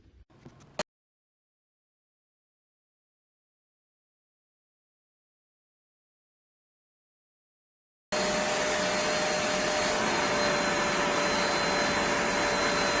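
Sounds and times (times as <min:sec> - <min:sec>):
spot cleaner suction motor whining: 0:08.2 - 0:13.0.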